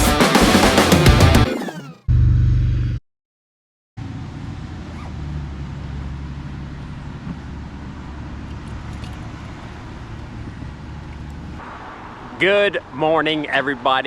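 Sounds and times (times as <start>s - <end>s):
vehicle engine running: 4.0s - 12.9s
outdoor background noise: 4.0s - 14.0s.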